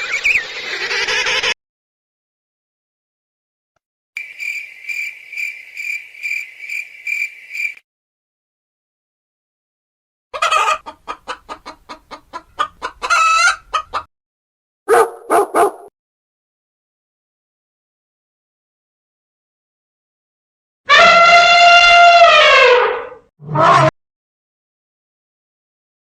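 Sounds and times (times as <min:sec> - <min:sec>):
chicken squawk: 0:00.0 - 0:01.6, 0:10.3 - 0:14.1, 0:20.9 - 0:23.9
loud chicken calls: 0:00.0 - 0:01.6, 0:10.4 - 0:14.1, 0:20.9 - 0:23.9
chicken clucking: 0:10.4 - 0:14.1.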